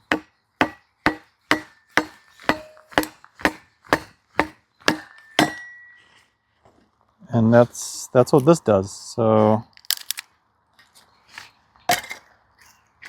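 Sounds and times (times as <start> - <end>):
axe striking metal wedge: 0.0 - 6.0.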